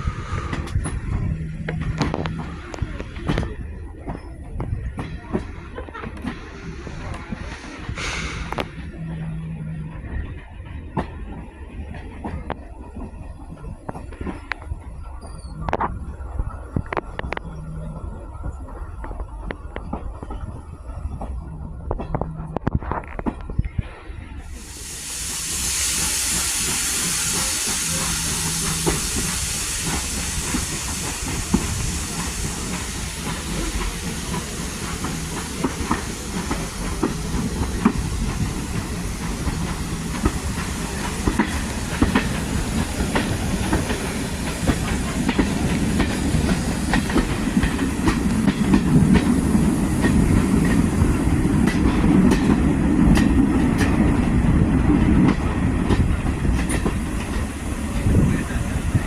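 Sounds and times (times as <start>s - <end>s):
train rumbling on track: 0.0s - 59.0s
steam hissing: 6.4s - 8.9s, 24.4s - 59.0s
wheels clicking on rail joints: 26.7s - 59.0s.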